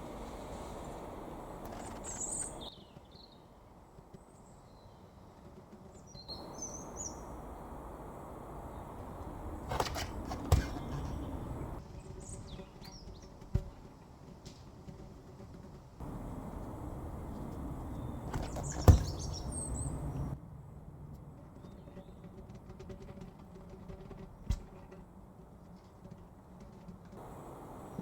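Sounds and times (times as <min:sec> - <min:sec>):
birds chirping: 0:00.0 - 0:03.4, 0:06.1 - 0:13.3, 0:16.0 - 0:20.4, 0:27.2 - 0:28.0
outdoor background noise: 0:00.0 - 0:28.0
sharp knocks: 0:18.3 - 0:20.3.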